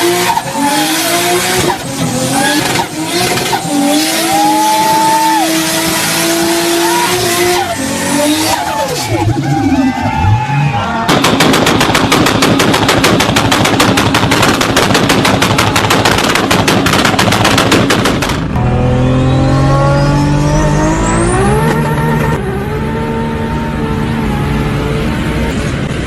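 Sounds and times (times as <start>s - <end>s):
engine accelerating: 18.2s - 26.0s.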